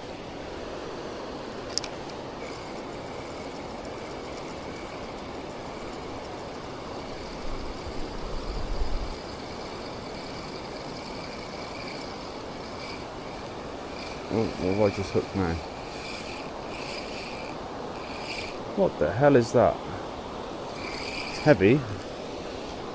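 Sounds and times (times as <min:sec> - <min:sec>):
faint high whine: 0:00.0 - 0:22.9
sharp click: 0:01.7 - 0:02.2.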